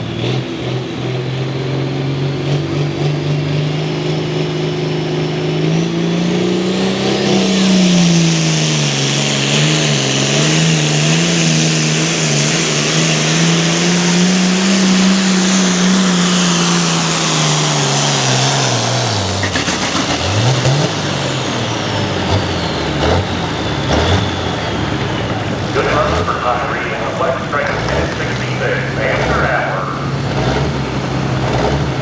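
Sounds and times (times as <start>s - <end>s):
tractor diesel engine at full throttle: 0.0s - 32.0s
turbo whine: 6.7s - 32.0s.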